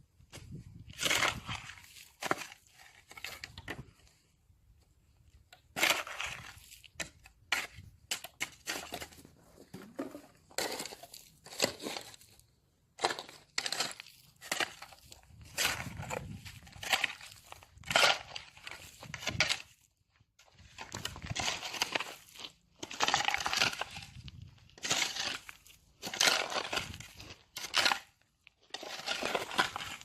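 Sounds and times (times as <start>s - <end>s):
shovel scraping soil: 0.2s - 4.2s, 5.3s - 30.0s.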